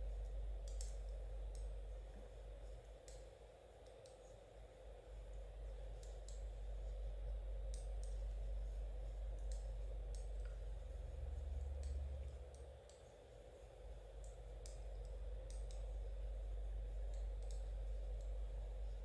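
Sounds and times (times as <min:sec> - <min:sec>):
steady low hum: 0:00.0 - 0:19.0
knitting needles clicking: 0:00.2 - 0:01.8, 0:06.0 - 0:06.5, 0:07.6 - 0:08.2, 0:09.4 - 0:10.6, 0:11.6 - 0:13.0, 0:14.2 - 0:15.9, 0:17.0 - 0:18.4.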